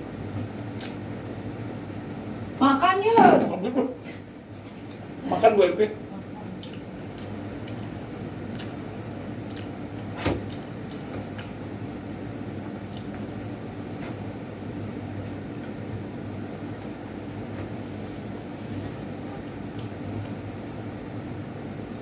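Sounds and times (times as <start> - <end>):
electrical fan hum: 0.0 - 22.0
chewing clicks and smacks: 0.7 - 1.0, 6.6 - 8.8, 9.4 - 11.6, 12.9 - 13.2.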